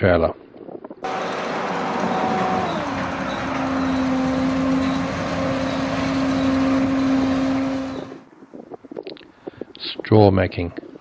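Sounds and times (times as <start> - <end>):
combine harvester diesel engine: 1.0 - 8.3.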